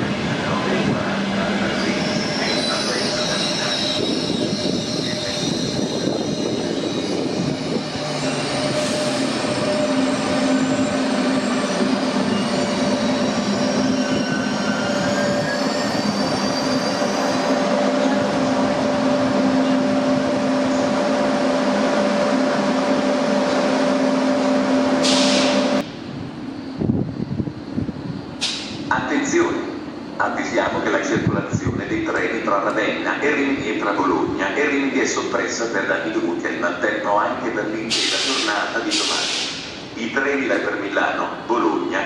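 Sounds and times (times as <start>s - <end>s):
train rumbling hum: 0.0s - 42.0s
high wheel squeal: 1.4s - 25.8s
short hiss: 37.9s - 39.7s.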